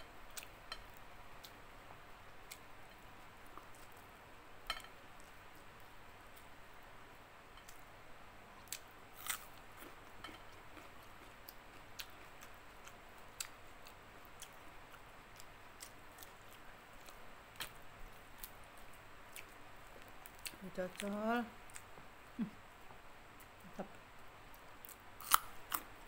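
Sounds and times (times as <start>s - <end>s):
person chewing: 8.6s - 14.6s, 24.9s - 25.9s.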